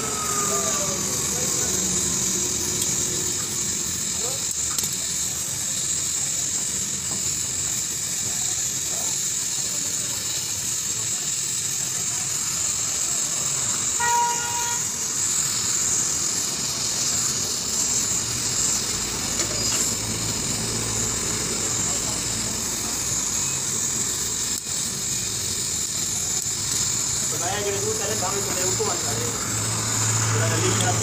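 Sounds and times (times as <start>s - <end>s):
steady hissing noise: 0.0s - 31.0s
vehicle horn toot: 14.0s - 14.9s.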